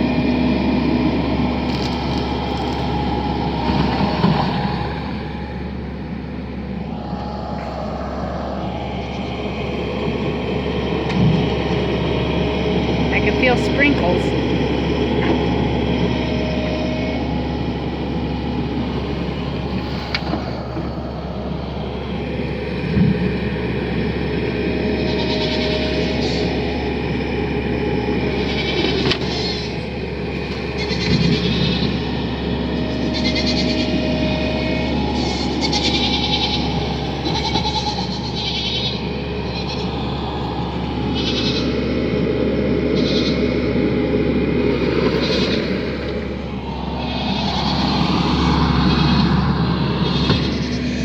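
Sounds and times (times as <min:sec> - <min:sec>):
engine droning: 0:00.0 - 0:51.0
goats bleating: 0:25.0 - 0:26.6, 0:28.4 - 0:29.6, 0:30.6 - 0:34.5, 0:35.1 - 0:41.8, 0:43.0 - 0:43.4
steady low rumble: 0:29.4 - 0:51.0.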